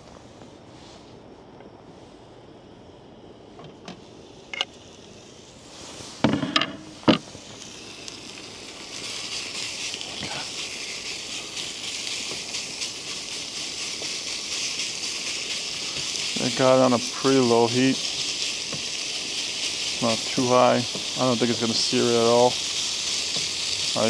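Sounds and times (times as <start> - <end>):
food sizzling in a pan: 4.8 - 24.0.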